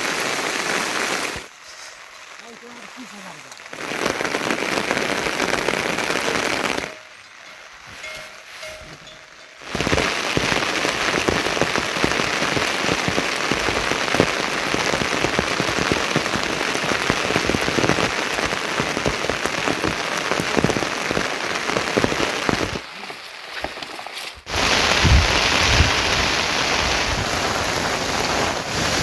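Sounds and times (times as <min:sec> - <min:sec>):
heavy rain on a hard surface: 0:00.0 - 0:29.0.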